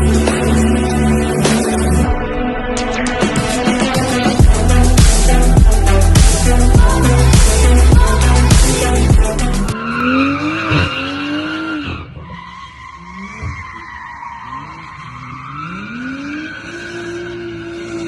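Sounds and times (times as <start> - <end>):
music: 0.0 - 9.8
car engine revving: 0.0 - 18.0.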